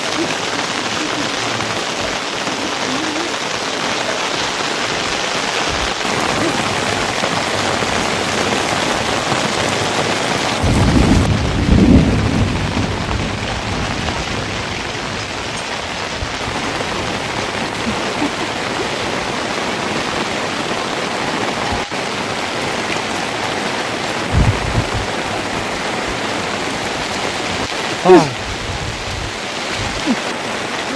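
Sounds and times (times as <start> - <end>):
heavy rain falling: 0.0 - 30.9
low rumble of thunder: 10.6 - 15.4, 24.3 - 26.2.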